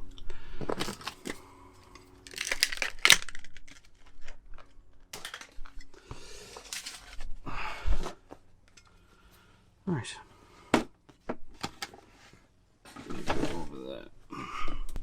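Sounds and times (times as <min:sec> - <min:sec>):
tools scraping and clicking in lock: 0:02.2 - 0:04.0.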